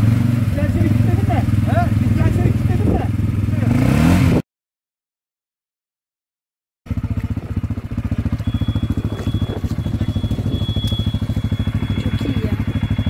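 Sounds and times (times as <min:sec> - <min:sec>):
atv engine idling: 0:00.0 - 0:03.7, 0:06.9 - 0:13.0.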